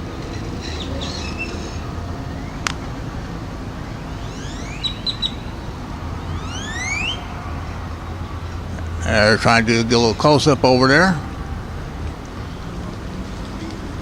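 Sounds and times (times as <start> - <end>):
low machine hum: 0.0 - 14.0
whistled bird calls and chirps: 0.6 - 2.9, 3.9 - 7.3.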